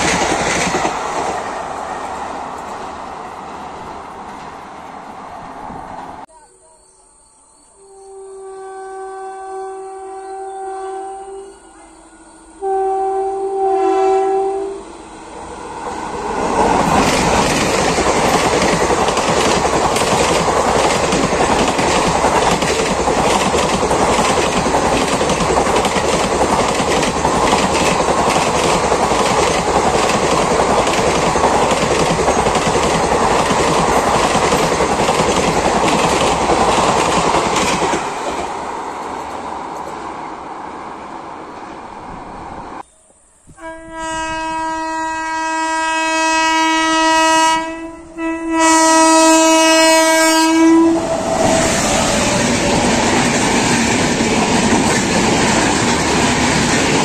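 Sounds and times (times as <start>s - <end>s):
train rushing past: 0.0s - 6.3s, 11.0s - 57.0s
two-note train horn: 7.7s - 15.6s, 43.5s - 51.1s.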